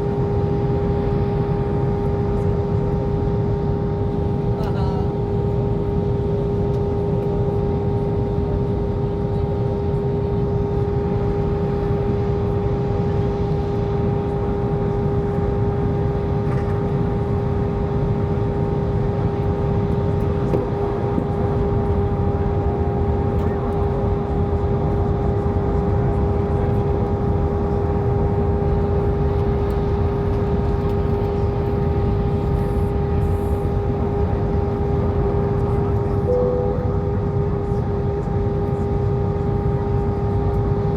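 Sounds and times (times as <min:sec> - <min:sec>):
engine and air roar: 0:00.0 - 0:40.9
steady hum tone: 0:35.8 - 0:40.8.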